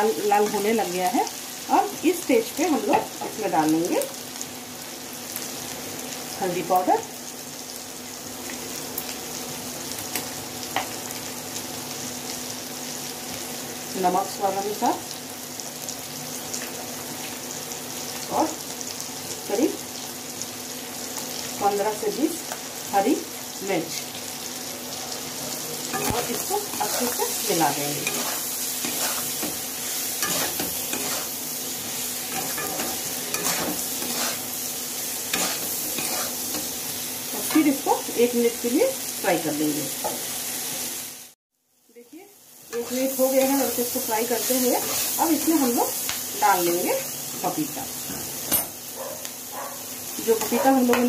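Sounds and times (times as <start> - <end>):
food sizzling in hot oil: 0.0 - 51.0
spatula scraping and knocking pan: 25.9 - 27.4, 28.0 - 34.5, 35.4 - 36.7.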